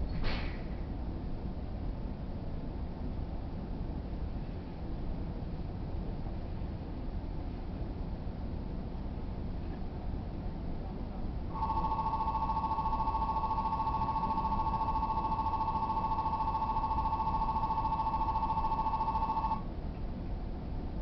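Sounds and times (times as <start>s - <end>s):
electric bell ringing: 11.5s - 19.6s.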